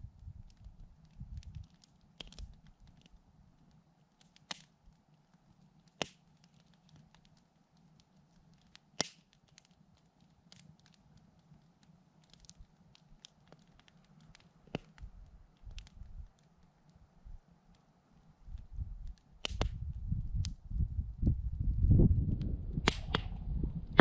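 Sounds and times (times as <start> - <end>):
campfire crackling: 0.0 - 24.0
sharp pops of fire: 0.5 - 3.1, 4.2 - 4.8, 5.8 - 7.9, 8.5 - 9.8, 11.8 - 16.4, 19.0 - 20.6, 22.4 - 24.0
low rumble: 19.7 - 24.0.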